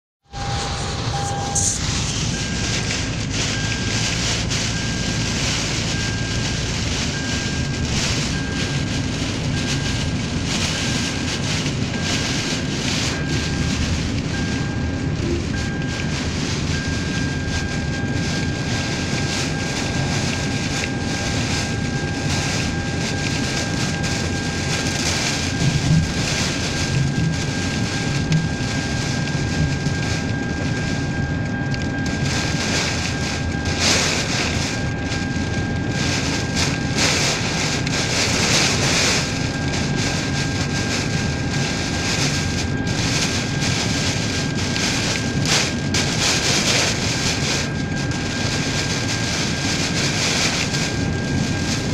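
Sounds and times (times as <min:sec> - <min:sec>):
faint high whine: 0:00.3 - 0:04.1
strong wind buffeting microphone: 0:00.4 - 0:51.9.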